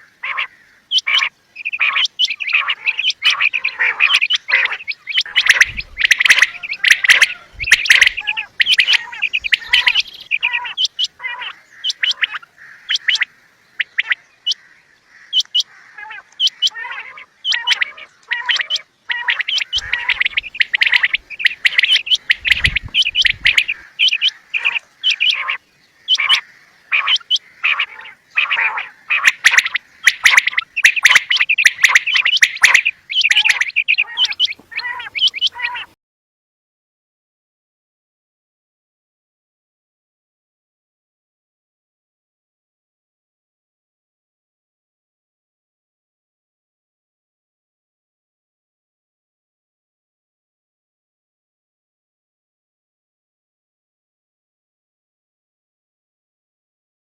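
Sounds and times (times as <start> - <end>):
quail calling: 0.0 - 36.0.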